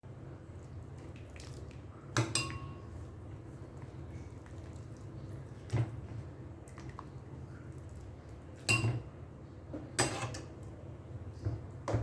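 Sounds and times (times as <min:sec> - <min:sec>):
kitchenware clinking: 0:02.2 - 0:02.8, 0:08.7 - 0:09.1, 0:10.0 - 0:10.5.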